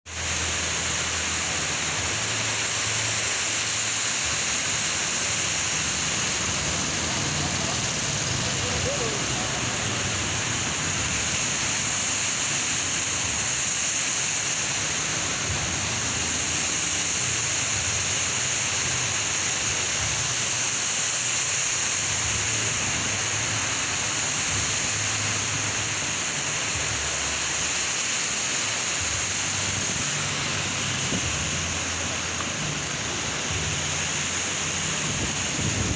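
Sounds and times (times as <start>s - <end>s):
heavy rain pouring: 0.1s - 35.9s
strong wind: 29.7s - 32.8s, 34.8s - 35.9s.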